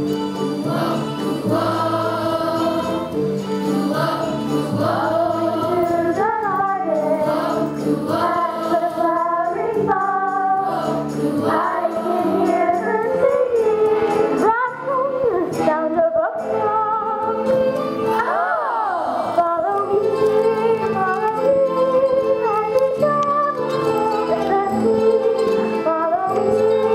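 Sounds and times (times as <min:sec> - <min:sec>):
musical accompaniment: 0:00.0 - 0:26.9
voices singing sustained notes: 0:00.4 - 0:13.6.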